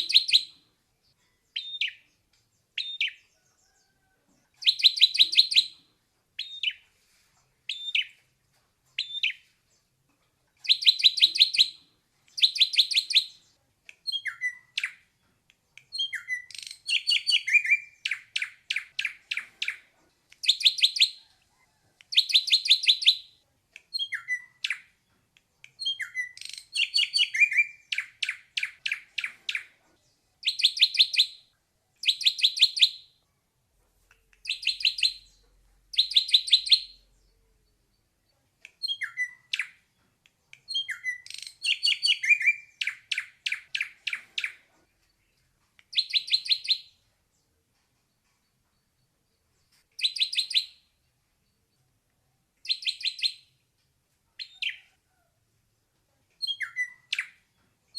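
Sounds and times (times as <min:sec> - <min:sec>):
bird singing whistled notes: 0:00.0 - 0:00.6, 0:01.6 - 0:02.1, 0:02.8 - 0:03.2, 0:04.6 - 0:05.8, 0:07.7 - 0:08.2, 0:10.6 - 0:15.0, 0:15.9 - 0:19.8, 0:20.4 - 0:21.2, 0:22.1 - 0:24.8, 0:25.8 - 0:29.7, 0:30.4 - 0:31.4, 0:32.0 - 0:33.1, 0:34.4 - 0:35.4, 0:36.0 - 0:37.0, 0:38.8 - 0:39.8, 0:40.7 - 0:44.6, 0:45.9 - 0:47.0, 0:50.0 - 0:50.9, 0:52.6 - 0:53.5, 0:56.4 - 0:57.4.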